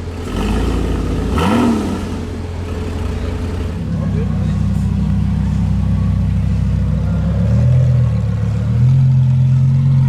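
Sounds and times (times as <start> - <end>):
car engine revving: 0.0 - 5.7.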